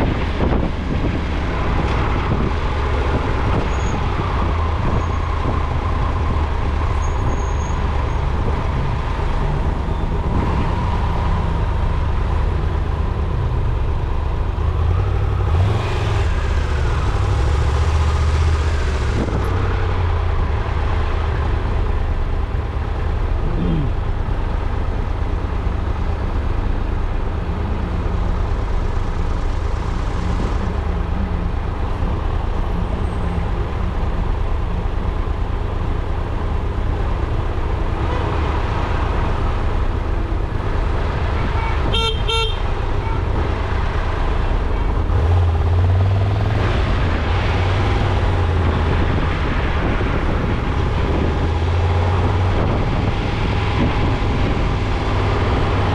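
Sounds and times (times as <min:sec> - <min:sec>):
car rumble on road: 0:00.0 - 0:55.9
car horn toots: 0:41.4 - 0:43.2.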